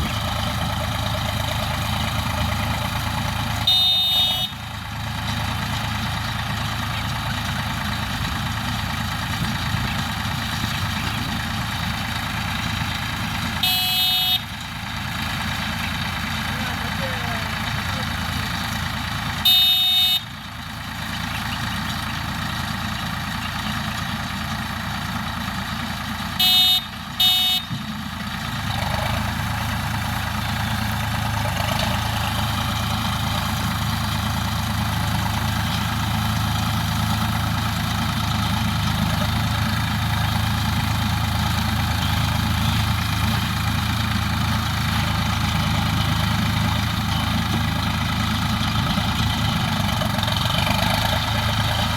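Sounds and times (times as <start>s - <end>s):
tractor engine running: 0.0s - 51.9s
horn honking: 3.5s - 4.7s, 13.6s - 14.6s, 19.4s - 20.4s, 26.4s - 27.8s.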